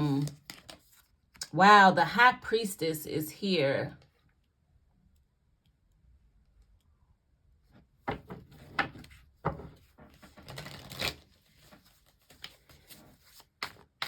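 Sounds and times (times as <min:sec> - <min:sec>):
cards being shuffled: 0:00.0 - 0:01.5, 0:10.0 - 0:14.0.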